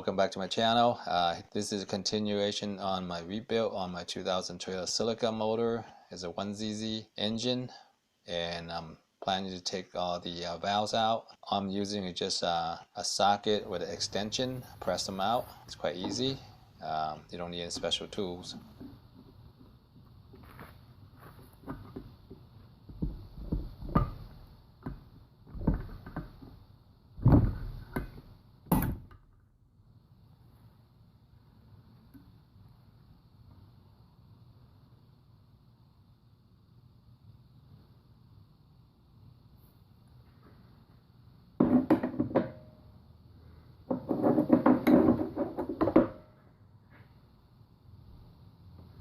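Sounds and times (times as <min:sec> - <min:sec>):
metal thunks and knocks: 0:27.2 - 0:29.0.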